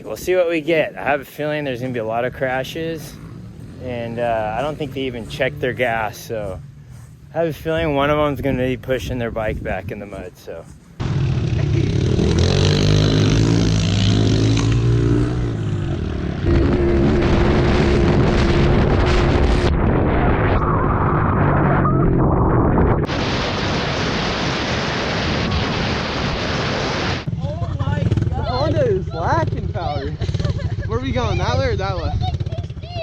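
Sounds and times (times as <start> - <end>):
small motorcycle engine revving: 11.0 - 19.7.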